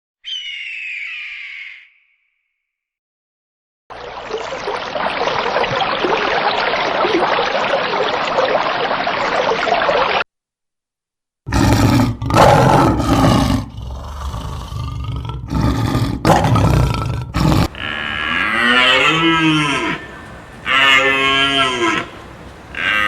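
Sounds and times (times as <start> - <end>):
rough animal calls: 17.4 - 23.0
cow mooing: 17.6 - 23.0.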